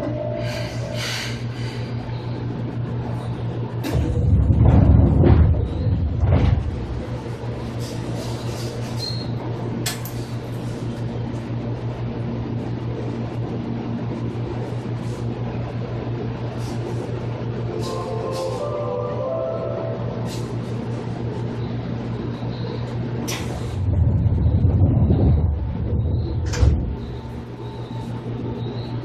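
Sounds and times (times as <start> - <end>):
train interior low hum: 0.0 - 29.0
loud rumble with sharp knocks: 3.6 - 10.0, 23.1 - 28.7.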